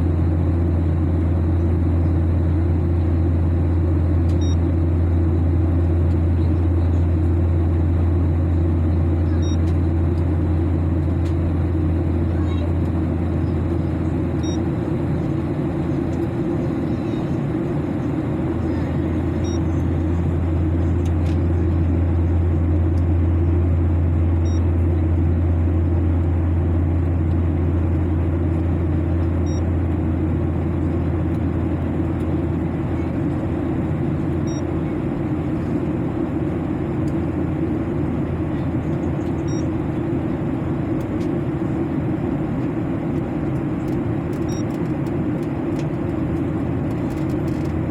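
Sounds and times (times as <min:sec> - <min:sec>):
airliner engine drone: 0:00.0 - 0:47.9.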